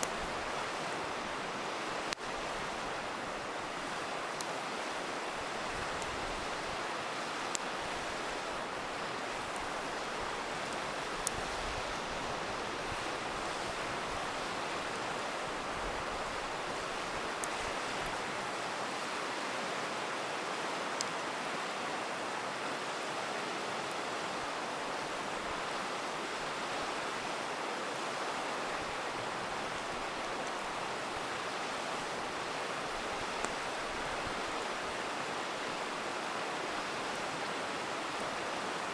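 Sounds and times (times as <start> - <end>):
campfire popping: 0.0 - 18.5, 28.8 - 35.0
river rushing: 0.0 - 38.9.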